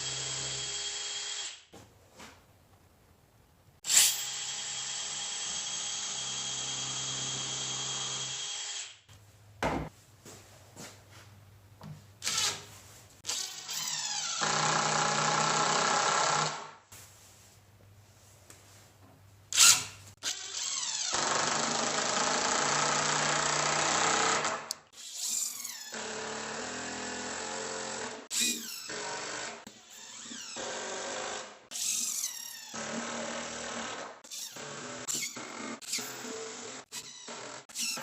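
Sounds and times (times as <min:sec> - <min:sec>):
power drill running: 0:03.9 - 0:08.9, 0:13.3 - 0:16.6, 0:20.2 - 0:31.4.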